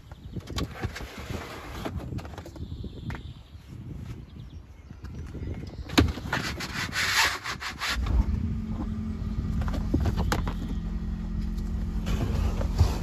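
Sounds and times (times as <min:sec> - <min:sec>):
rubber liner rubbing and scraping: 0:00.6 - 0:02.6, 0:06.1 - 0:08.0
car engine droning: 0:07.9 - 0:13.0.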